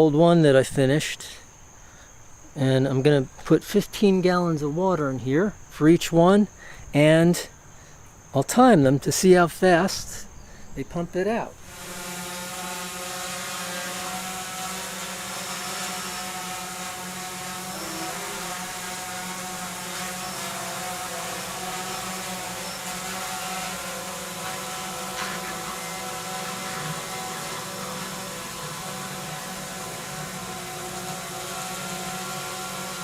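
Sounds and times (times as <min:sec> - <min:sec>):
sump pump motor humming: 0:11.6 - 0:33.0.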